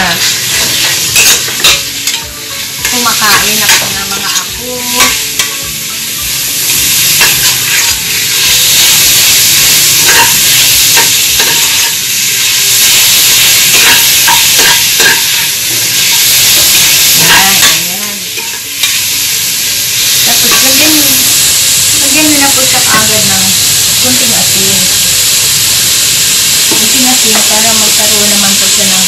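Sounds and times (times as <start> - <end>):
onion sizzling in hot oil: 0.0 - 29.0
utensil scraping metal pot: 7.2 - 19.1.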